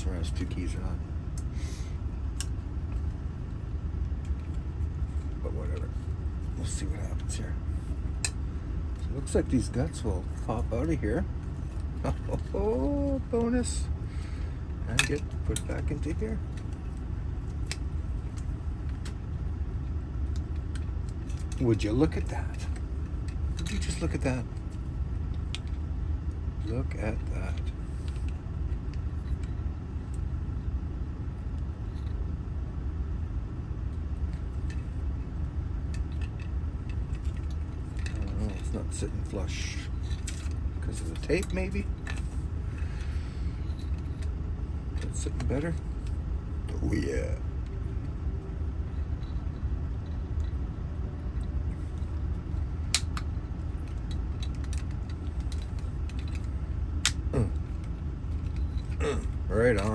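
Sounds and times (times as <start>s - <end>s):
low engine rumble: 0.0s - 59.9s
steady low hum: 0.0s - 59.9s
small metallic clicks of lock parts: 35.9s - 38.7s, 52.9s - 59.9s.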